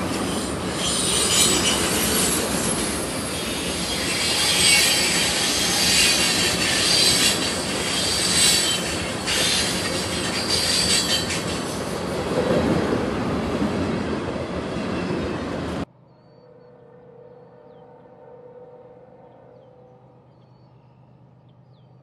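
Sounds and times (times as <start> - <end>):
high wheel squeal: 0.0 - 11.8
train wheels rumbling on rail: 0.0 - 16.0.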